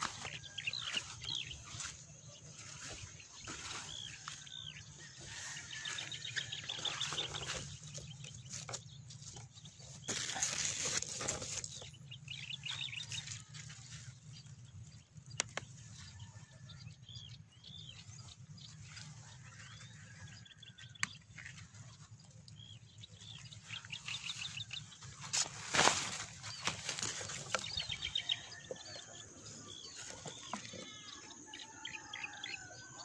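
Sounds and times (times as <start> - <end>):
small birds chirping: 0.0 - 33.0
leaves rustling: 25.1 - 27.6.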